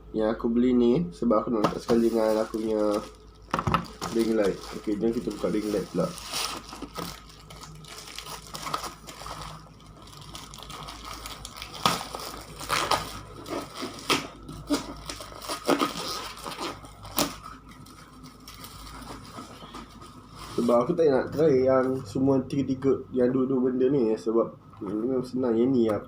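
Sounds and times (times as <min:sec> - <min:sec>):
packaging rustling: 0:01.6 - 0:20.9.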